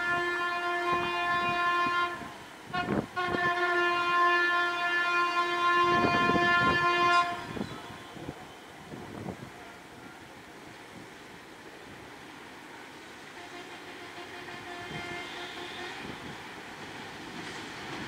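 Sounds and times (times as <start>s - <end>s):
locomotive air horn blasts: 0.0s - 8.6s, 13.3s - 16.4s
train wheels clacking: 15.9s - 18.0s.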